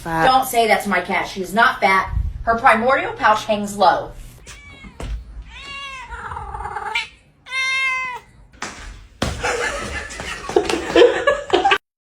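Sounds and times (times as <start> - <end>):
cat meowing: 4.4 - 8.4.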